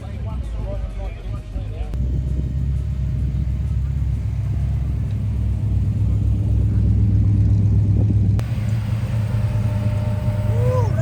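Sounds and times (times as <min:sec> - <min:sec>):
car engine rumbling at low revs: 0:00.0 - 0:11.0.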